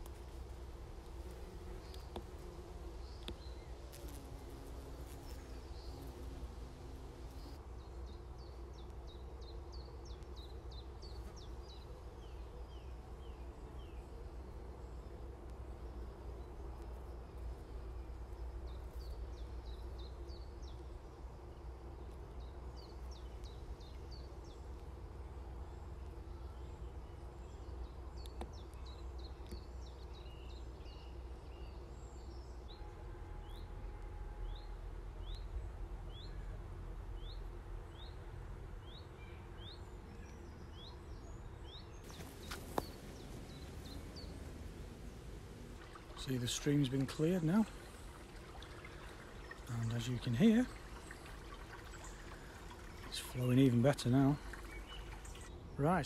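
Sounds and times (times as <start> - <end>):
birds chirping: 25.6 - 56.0
steady low rumble: 42.2 - 46.5.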